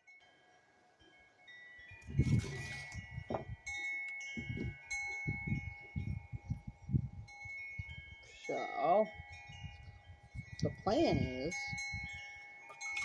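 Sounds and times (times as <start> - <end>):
wind chimes ringing: 0.0 - 13.0
short rustle: 2.1 - 3.4.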